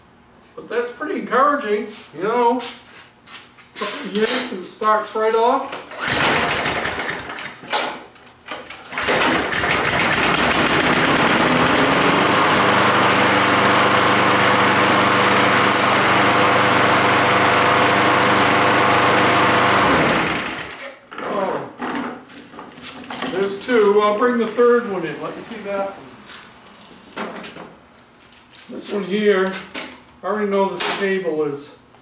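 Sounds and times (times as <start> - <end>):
lawn mower engine running: 6.0 - 7.5, 8.8 - 20.8.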